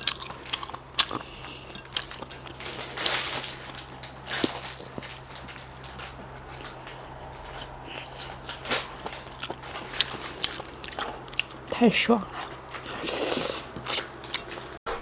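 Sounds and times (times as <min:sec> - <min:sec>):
eating shellfish: 0:00.0 - 0:14.8
soft mouth sounds: 0:12.9 - 0:14.1.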